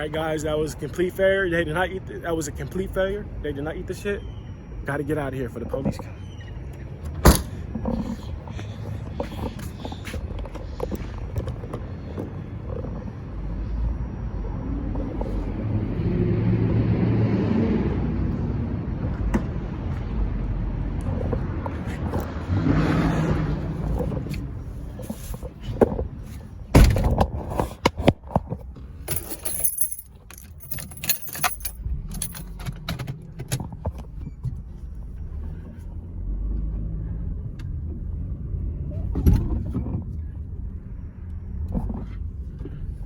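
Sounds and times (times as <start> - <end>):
sharp clicks and jangling rattles: 29.0 - 33.8.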